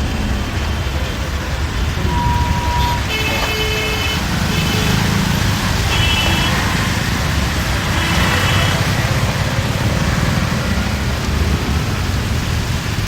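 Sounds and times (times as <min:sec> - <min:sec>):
bus rumbling in traffic: 0:00.0 - 0:13.0
vehicle horns: 0:01.8 - 0:07.1, 0:07.8 - 0:09.1.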